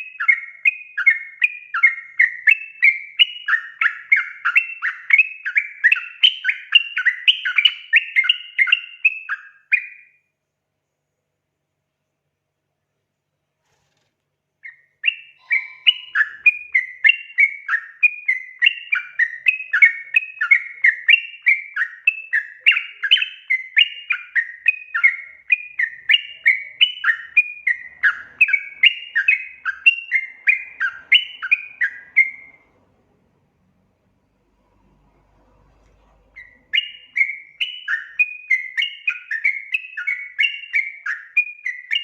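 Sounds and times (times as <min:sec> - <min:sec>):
bird bubbly chirping song: 0:14.7 - 0:32.6, 0:36.4 - 0:42.0.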